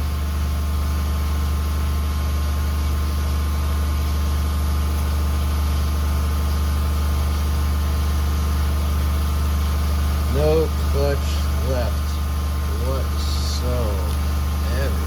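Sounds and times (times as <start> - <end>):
machine humming: 6.4 - 15.0.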